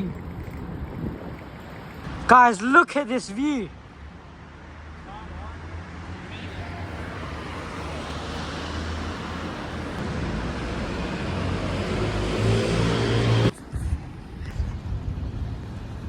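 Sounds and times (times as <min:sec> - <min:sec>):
road traffic noise: 0:00.0 - 0:16.0
vehicle engine passing: 0:06.5 - 0:13.6.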